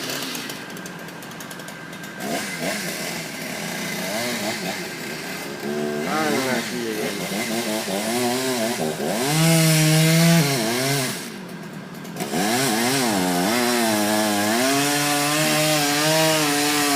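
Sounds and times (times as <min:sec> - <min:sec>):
chainsaw revving: 0:00.0 - 0:16.9.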